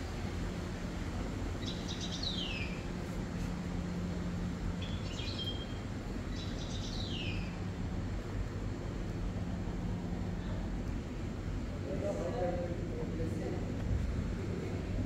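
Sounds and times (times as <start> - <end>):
low background hum: 0.0 - 15.0
songbird singing: 1.6 - 2.9, 4.8 - 7.7.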